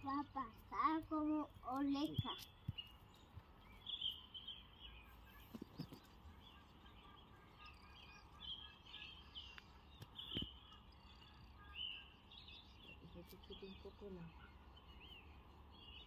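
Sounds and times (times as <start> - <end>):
low steady background noise: 0.0 - 16.0
small birds chirping: 0.0 - 16.0.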